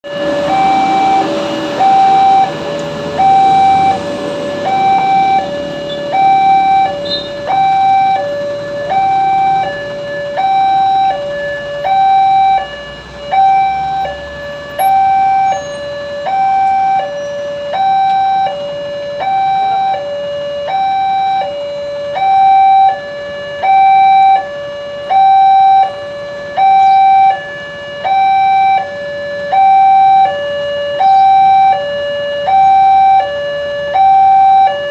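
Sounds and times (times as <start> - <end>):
vehicle rumbling: 0.0 - 22.7
level crossing alarm: 0.0 - 34.9.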